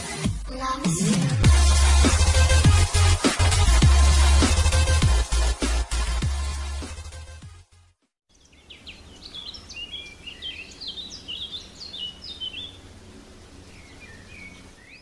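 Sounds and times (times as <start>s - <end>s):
electronic music: 0.0s - 7.5s
bird chirping: 8.3s - 15.0s.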